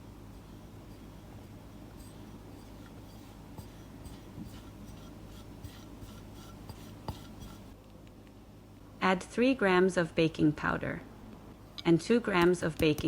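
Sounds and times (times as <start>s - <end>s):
scratchy rubbing: 0.0s - 7.8s
low steady hum: 0.0s - 12.8s.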